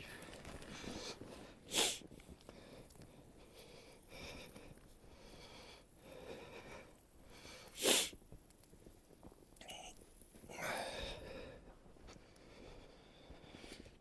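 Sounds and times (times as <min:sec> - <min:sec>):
breathy sounds: 0:09.6 - 0:11.6.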